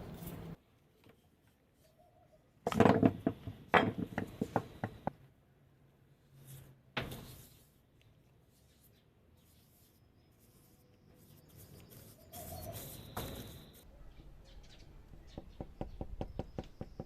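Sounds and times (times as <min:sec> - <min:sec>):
hard objects knocking and clattering: 0:02.6 - 0:05.1.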